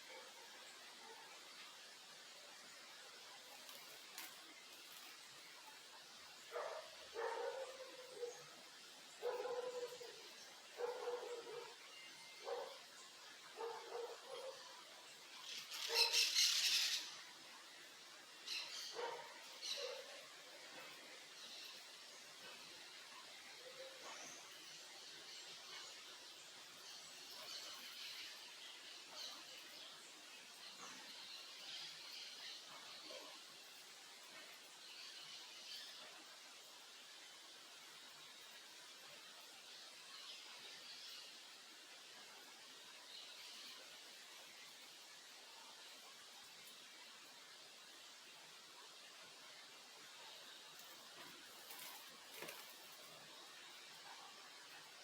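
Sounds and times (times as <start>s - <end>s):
faint steady hiss: 0.0s - 55.0s
dog barking: 6.5s - 8.4s, 9.2s - 10.1s, 10.8s - 11.8s, 12.4s - 12.8s, 13.6s - 14.6s, 15.9s - 16.2s, 19.0s - 20.2s.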